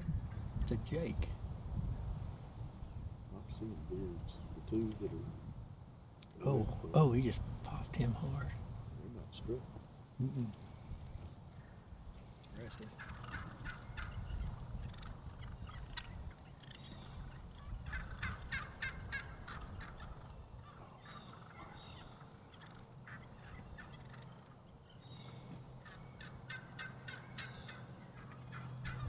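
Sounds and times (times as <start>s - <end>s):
turkeys gobbling: 12.6s - 29.0s.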